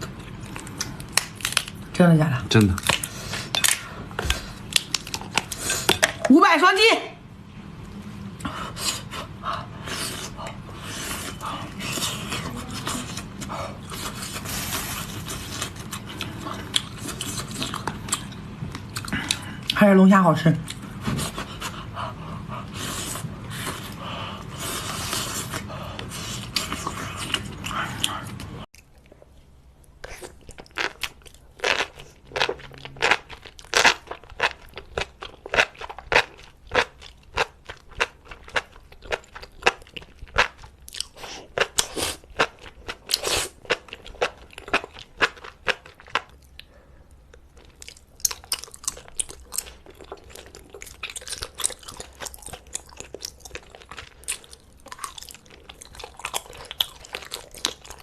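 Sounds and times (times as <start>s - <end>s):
crunchy chewing: 47.3s - 58.0s.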